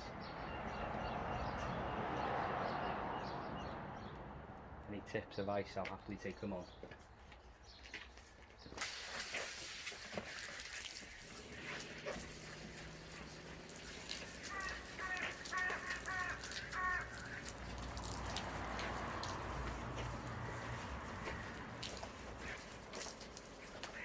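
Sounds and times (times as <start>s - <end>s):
animal calling: 11.4s - 19.4s.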